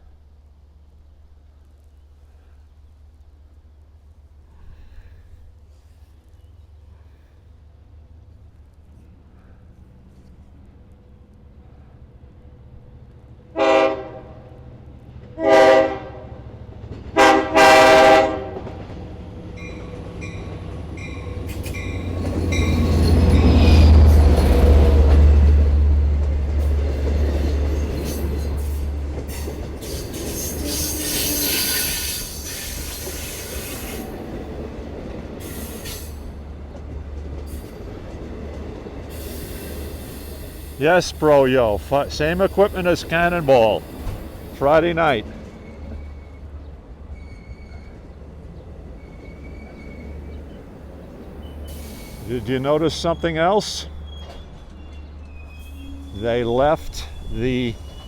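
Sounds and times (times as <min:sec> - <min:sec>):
train rumbling: 0:07.6 - 0:58.0
locomotive horn blasts: 0:13.6 - 0:14.4, 0:15.4 - 0:16.3, 0:17.2 - 0:18.6, 0:40.8 - 0:43.8, 0:44.6 - 0:45.2
high wheel squeal: 0:29.8 - 0:34.1, 0:53.9 - 0:56.2.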